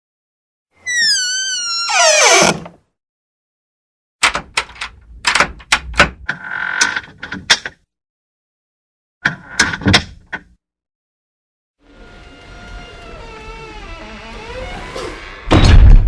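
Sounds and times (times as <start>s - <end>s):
door hinge squeak: 0.8s - 2.8s, 12.2s - 15.8s.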